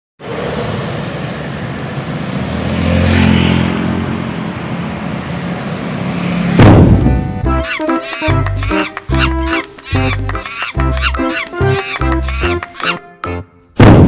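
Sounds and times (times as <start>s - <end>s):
vehicle engine and road noise: 0.2s - 12.9s.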